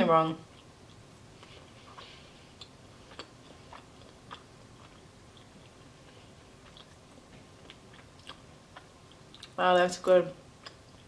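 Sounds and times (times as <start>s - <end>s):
faint chewing: 0.4s - 9.6s, 10.5s - 11.0s
small mouth clicks: 10.6s - 11.0s.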